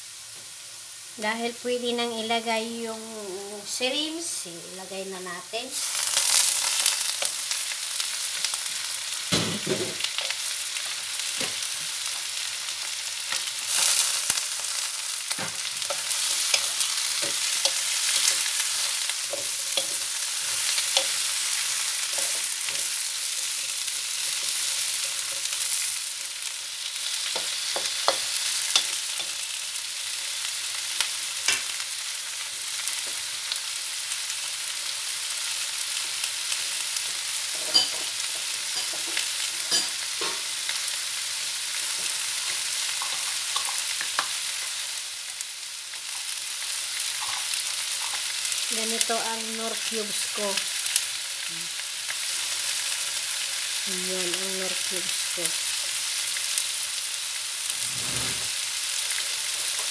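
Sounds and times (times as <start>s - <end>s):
shrimp sizzling in hot oil: 0.0s - 59.9s
wooden spoon scraping a wok: 15.3s - 26.0s, 57.7s - 58.6s.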